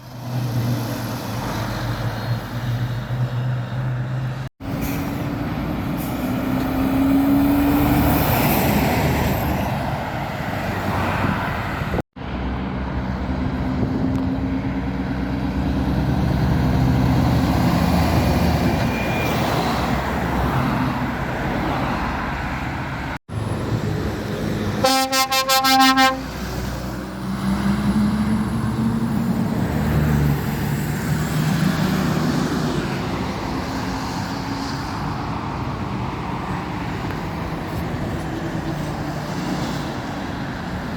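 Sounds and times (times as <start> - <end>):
lorries passing on road: 0.0 - 40.9
truck horn: 24.8 - 26.4.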